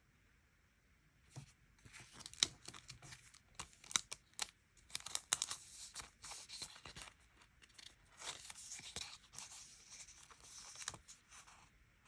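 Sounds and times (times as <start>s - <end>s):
paper crinkling and rustling: 1.3s - 11.7s
stickers peeling or tearing: 1.9s - 11.1s.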